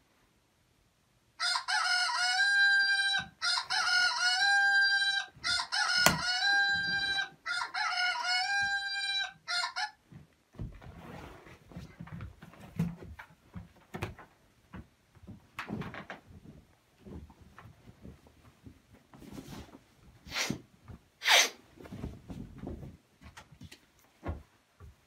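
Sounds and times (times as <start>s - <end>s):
rooster crowing: 1.4s - 10.0s
faint rustling: 10.0s - 25.0s.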